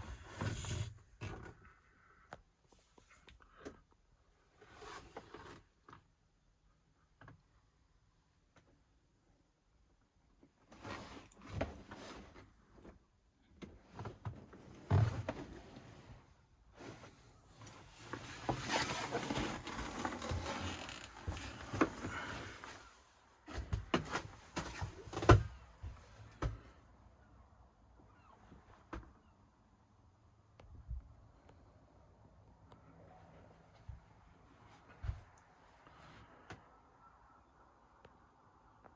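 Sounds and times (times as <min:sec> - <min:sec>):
scraping and rustling: 0:13.9 - 0:25.6.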